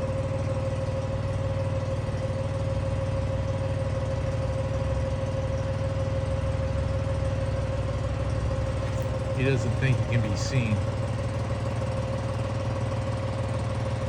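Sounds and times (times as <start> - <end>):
engine idling: 0.0 - 14.0
mid-pitched whine: 8.6 - 11.6.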